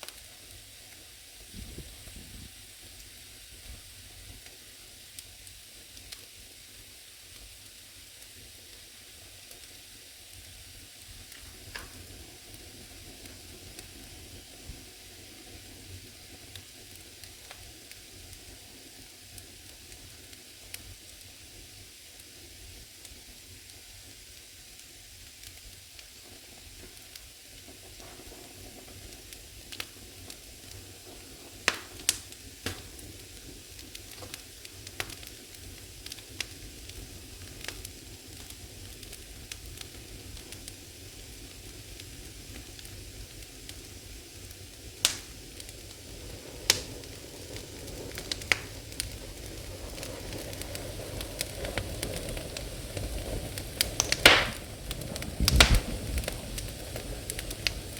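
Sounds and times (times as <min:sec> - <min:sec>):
fire crackling and popping: 0:00.0 - 0:57.9
low rushing of fire: 0:10.4 - 0:20.8, 0:24.8 - 0:57.9.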